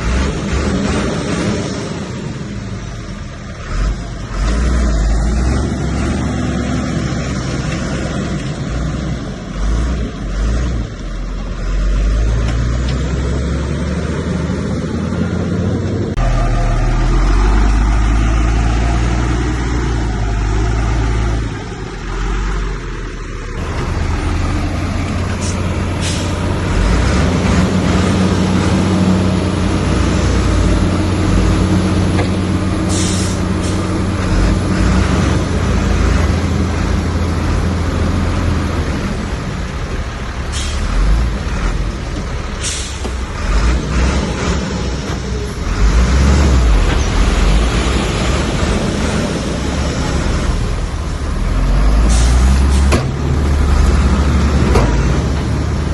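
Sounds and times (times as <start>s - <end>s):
diesel machinery engine drone: 0.0s - 55.9s
short sharp hisses: 32.9s - 33.9s, 42.6s - 43.1s.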